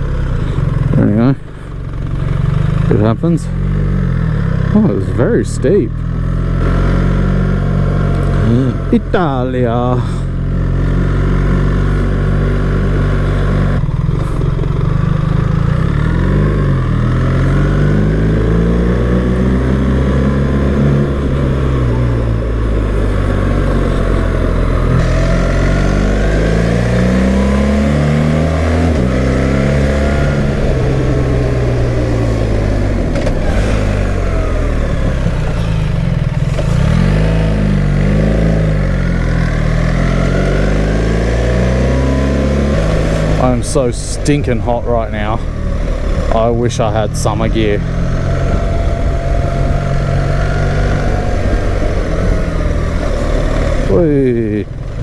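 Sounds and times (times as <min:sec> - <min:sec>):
motorcycle engine accelerating: 0:00.0 - 0:55.0
wind noise: 0:42.7 - 0:54.0.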